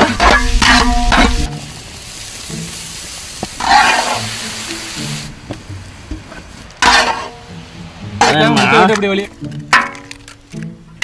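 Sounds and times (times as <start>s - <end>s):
food sizzling in a pan: 0.0s - 9.4s
background music: 0.0s - 11.0s
stirring scrape: 6.8s - 7.4s.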